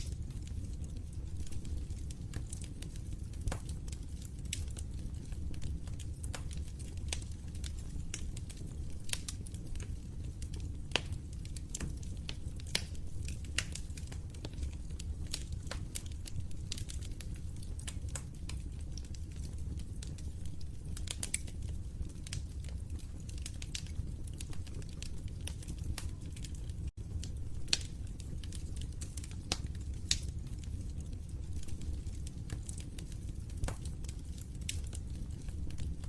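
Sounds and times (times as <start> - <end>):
fireplace fire crackling: 0.0 - 36.0.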